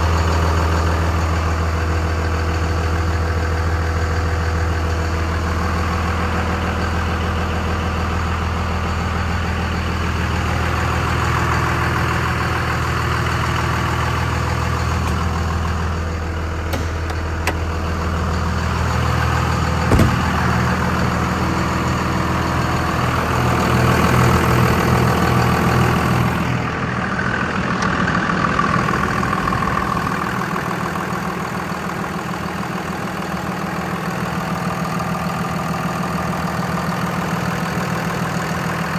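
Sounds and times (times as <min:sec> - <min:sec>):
diesel engine idling: 0:00.0 - 0:38.9
sharp knock: 0:19.9 - 0:20.4.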